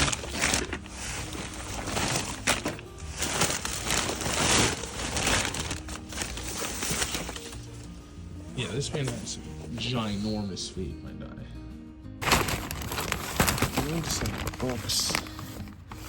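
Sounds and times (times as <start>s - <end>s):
bags rustling and crinkling: 0.0s - 10.4s, 12.2s - 16.0s.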